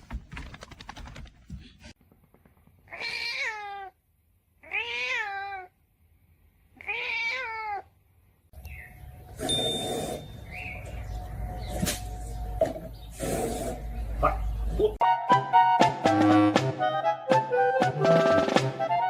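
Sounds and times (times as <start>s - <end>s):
cat meowing: 2.9s - 4.0s, 4.6s - 5.7s, 6.8s - 7.9s.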